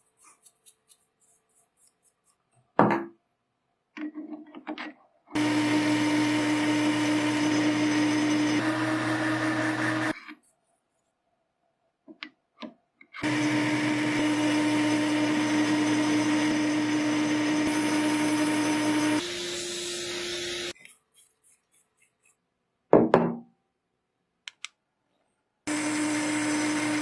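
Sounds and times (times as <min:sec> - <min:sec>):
power tool motor running: 0:05.4 - 0:10.2, 0:13.2 - 0:20.8, 0:25.7 - 0:27.0
small clicks: 0:24.4 - 0:24.8.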